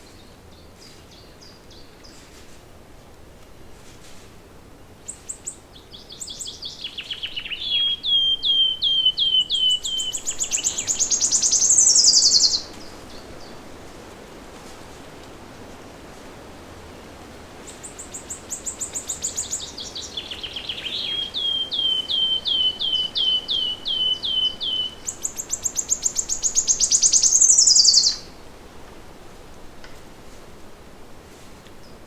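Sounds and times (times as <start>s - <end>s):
faint steady hiss: 0.0s - 32.0s
songbird singing trills: 5.1s - 13.6s, 17.7s - 28.4s.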